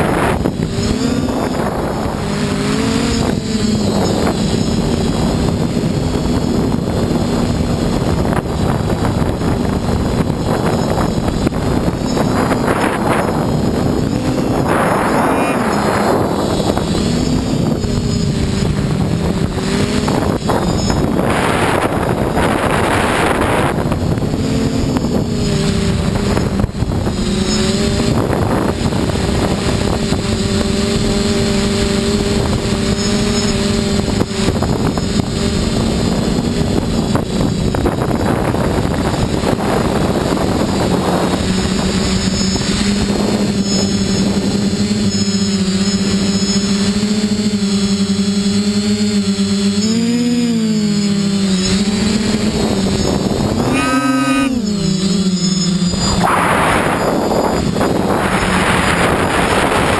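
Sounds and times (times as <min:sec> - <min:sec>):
rushing noise surges: 0:00.0 - 0:30.3, 0:51.7 - 0:59.9
quadcopter motors buzzing: 0:00.0 - 0:59.9.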